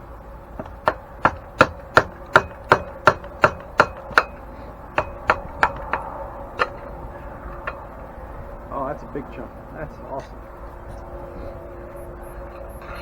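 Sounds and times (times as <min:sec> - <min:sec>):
hammer striking metal: 0:00.6 - 0:08.0.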